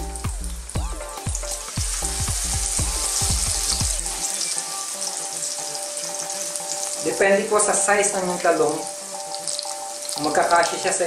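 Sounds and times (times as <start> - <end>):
background music with plucked bass: 0.0 - 4.4
eggplant frying in hot oil: 0.0 - 11.0.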